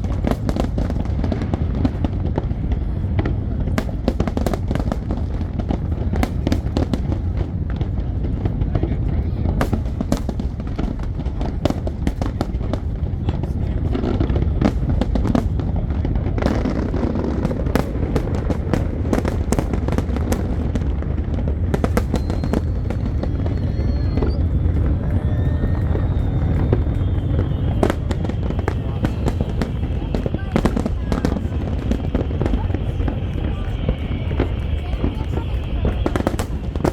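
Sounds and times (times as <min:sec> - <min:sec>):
fireworks bangs and crackles: 0:00.0 - 0:36.9
low rumble of shells bursting: 0:14.1 - 0:34.8
thin high whistles: 0:22.0 - 0:30.0.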